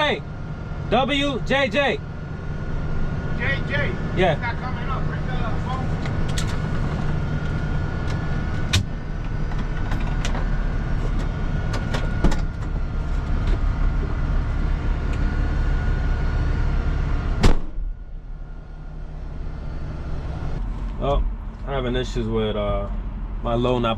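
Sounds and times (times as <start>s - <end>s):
truck engine idling: 0.0s - 23.9s
loud thump: 17.4s - 18.0s.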